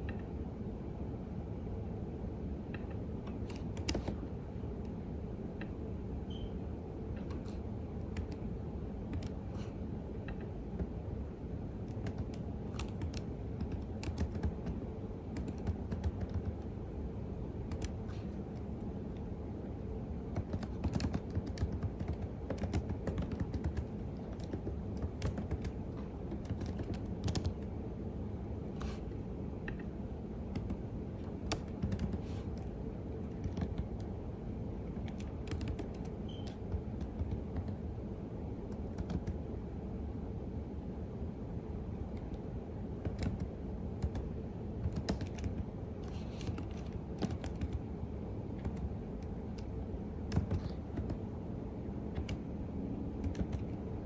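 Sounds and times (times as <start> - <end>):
steady low hum: 0.0 - 54.0
keyboard keystroke clicks: 2.7 - 4.2, 9.1 - 9.7, 11.8 - 14.8, 17.7 - 18.7, 20.3 - 27.7, 38.7 - 39.4, 44.8 - 45.6, 46.3 - 47.8, 48.6 - 49.7, 50.3 - 51.2, 52.1 - 52.5, 53.2 - 53.8.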